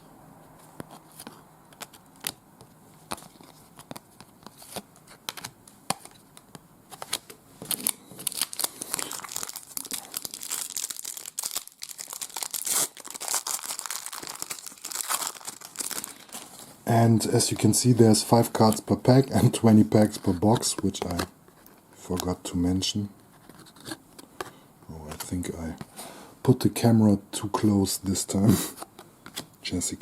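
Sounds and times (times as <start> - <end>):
wrapper tearing and crinkling: 7.7 - 16.6.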